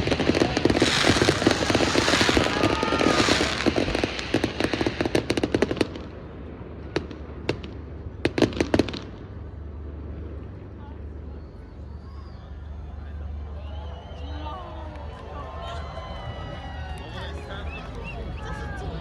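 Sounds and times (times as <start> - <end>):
aerial fireworks crackling: 0.0 - 9.4.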